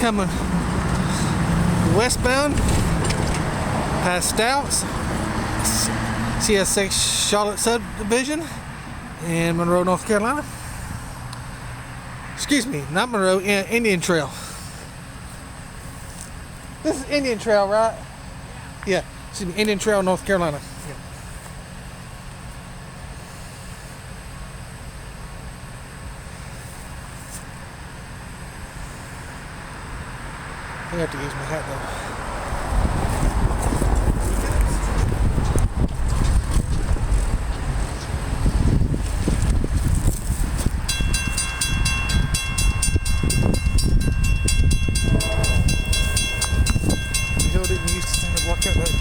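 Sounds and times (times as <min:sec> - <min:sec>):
freight train rumbling past: 0:00.0 - 0:10.6, 0:31.8 - 0:49.0
low engine hum: 0:00.0 - 0:49.0
crossing bell ringing rapidly: 0:01.9 - 0:02.6, 0:04.0 - 0:04.9, 0:40.8 - 0:49.0.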